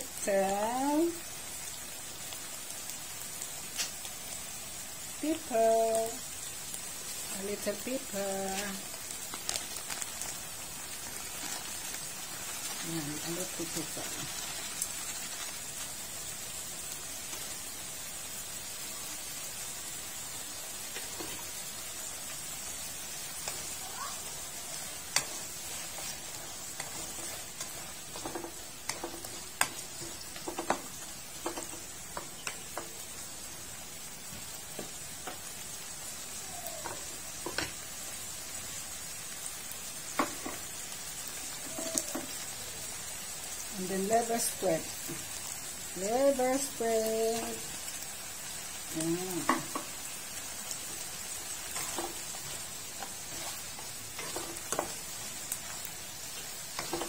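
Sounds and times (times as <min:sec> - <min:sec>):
vegetables sizzling in a wok: 0:00.0 - 0:57.0
spatula stirring pan: 0:06.9 - 0:17.7, 0:20.2 - 0:33.5, 0:48.9 - 0:57.0.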